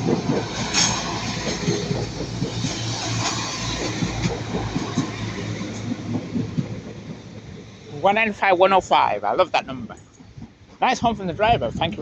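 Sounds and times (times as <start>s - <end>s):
wheels clicking over track: 0.0s - 9.1s
train engine drone: 0.0s - 10.8s
train passing: 0.0s - 12.0s.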